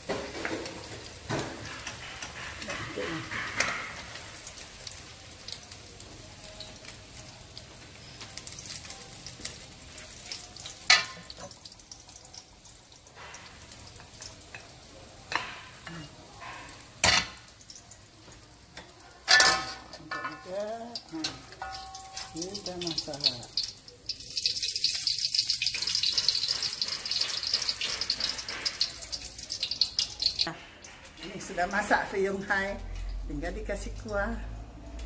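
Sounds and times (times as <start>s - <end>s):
spatula scraping and knocking pan: 0.0s - 4.3s, 25.6s - 30.1s
omelette sizzling in oil: 0.0s - 34.4s.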